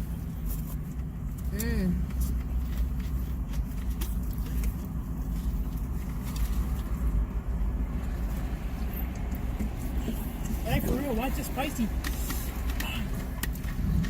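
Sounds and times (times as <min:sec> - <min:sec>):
rustles: 0:00.0 - 0:10.7
engine rumbling: 0:00.0 - 0:14.0.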